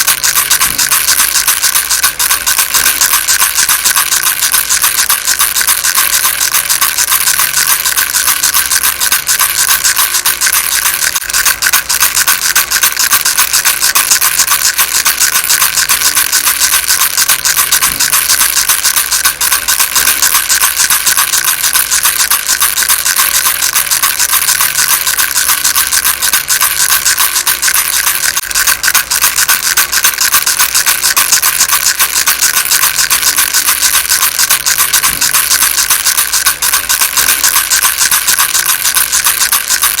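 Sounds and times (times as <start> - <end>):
baby rattle shaken: 0.0 - 40.0.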